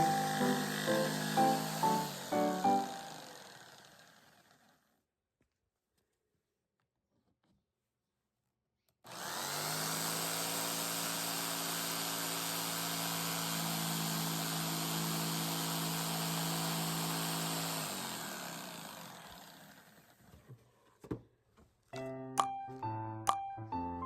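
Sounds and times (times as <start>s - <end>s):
electric power tool motor: 0.0s - 4.9s, 9.1s - 20.3s.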